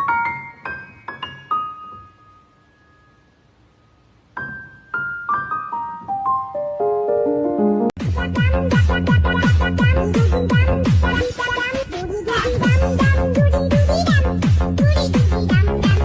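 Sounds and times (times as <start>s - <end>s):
piano music: 0.0s - 8.0s.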